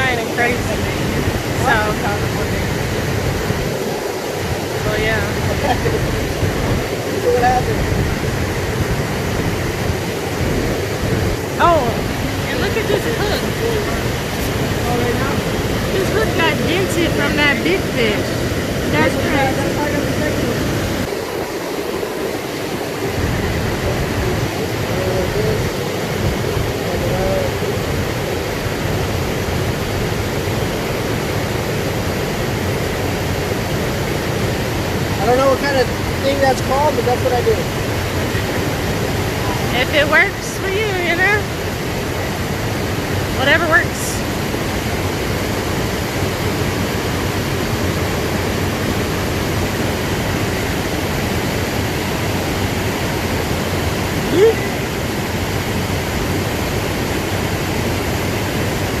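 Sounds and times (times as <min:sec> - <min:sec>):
steady water rushing: 0:00.0 - 0:59.0
wind on microphone: 0:00.0 - 0:59.0.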